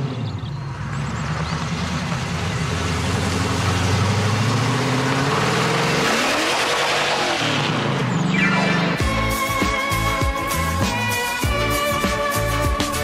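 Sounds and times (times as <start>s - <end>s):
sports car engine accelerating: 0.0s - 9.0s.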